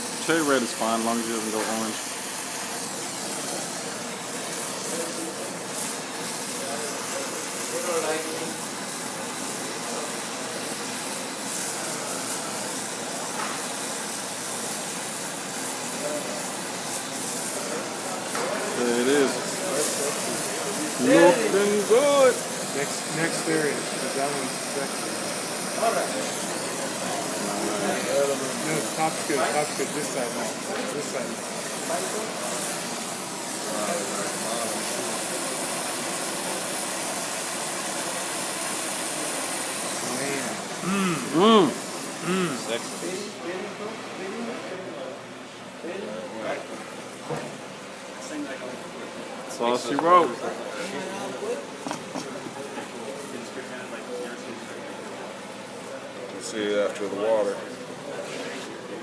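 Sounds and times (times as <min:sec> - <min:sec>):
torch flame hissing: 0:00.0 - 0:43.7.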